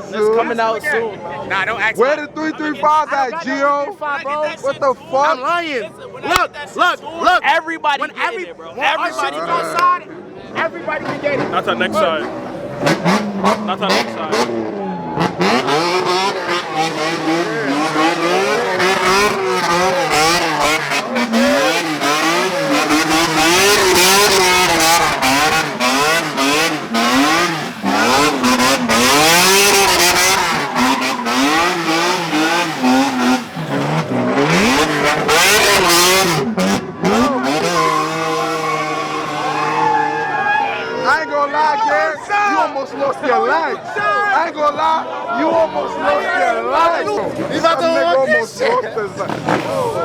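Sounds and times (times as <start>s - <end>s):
car engine revving: 11.0s - 40.6s, 49.2s - 50.0s.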